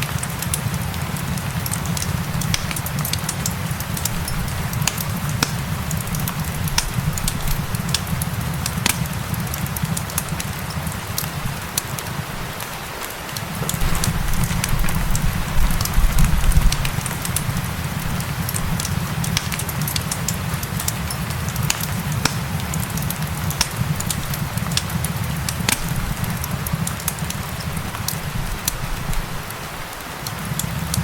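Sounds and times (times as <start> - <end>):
gentle rain hiss: 0.0 - 31.0
wood fire crackling: 0.0 - 31.0
low rumble: 13.8 - 18.8.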